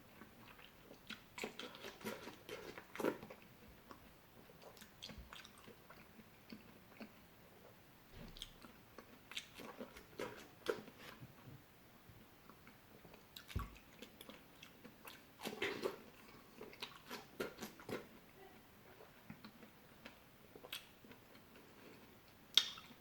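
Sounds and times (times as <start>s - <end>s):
person biting and chewing fruit: 13.4s - 18.1s.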